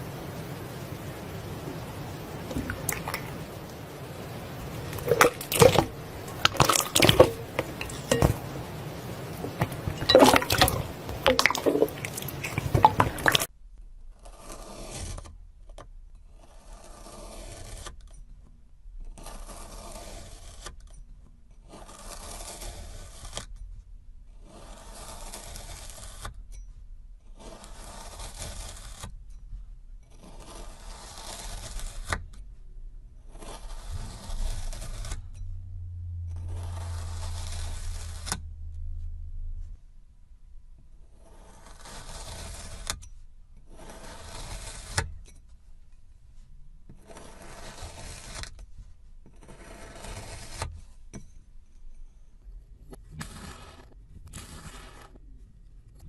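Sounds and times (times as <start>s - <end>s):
scraping strokes: 2.5s - 13.5s, 30.2s - 32.4s, 33.2s - 35.4s, 36.3s - 39.8s, 41.1s - 43.1s.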